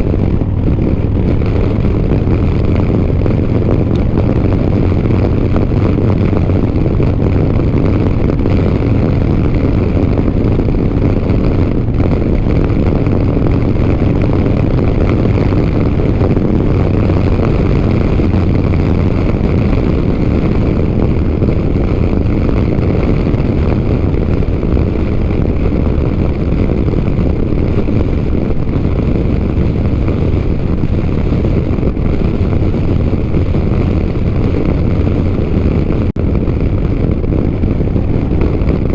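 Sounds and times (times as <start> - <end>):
motorcycle engine running: 0.0 - 38.9
wind rushing over microphone: 0.0 - 38.9.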